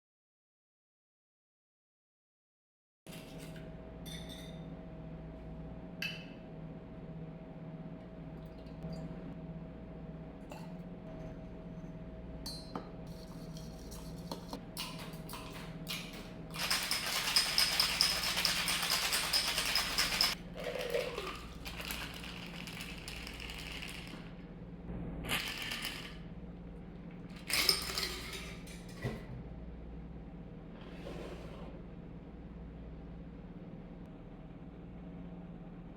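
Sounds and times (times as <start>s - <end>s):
clinks of bar tools and glass: 4.0s - 4.6s
ice rattling in cocktail shaker: 15.3s - 24.3s, 25.3s - 26.2s, 27.4s - 28.9s.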